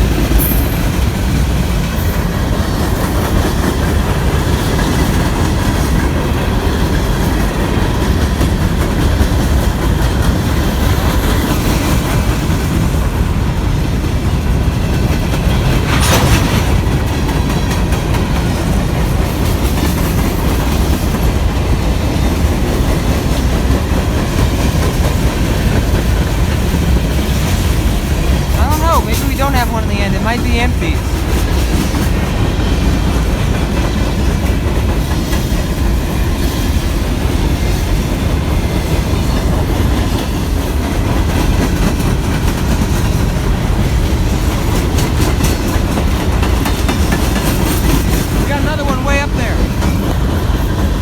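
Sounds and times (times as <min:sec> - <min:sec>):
wheels clacking over rails: 0:00.0 - 0:28.8, 0:31.0 - 0:48.6
freight train rumble: 0:00.0 - 0:51.0.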